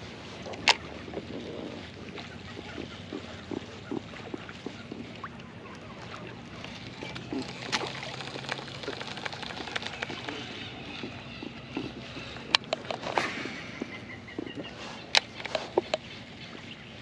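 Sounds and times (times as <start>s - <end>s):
small clicks and crackles: 0.0s - 16.7s
water sloshing around kayak: 0.0s - 17.0s.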